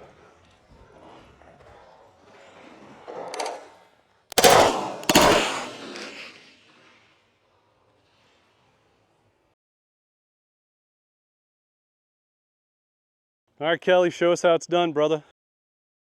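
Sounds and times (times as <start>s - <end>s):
handgun shots: 4.3s - 6.2s.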